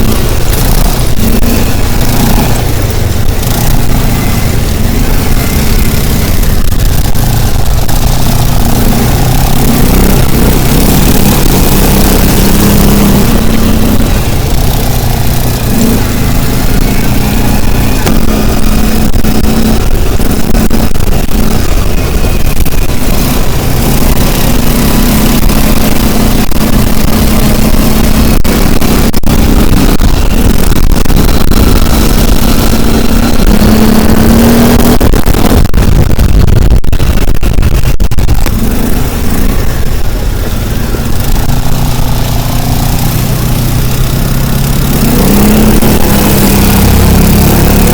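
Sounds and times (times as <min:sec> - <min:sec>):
dense rushing noise: 0:00.0 - 0:47.9
vehicle engine running: 0:00.0 - 0:47.9.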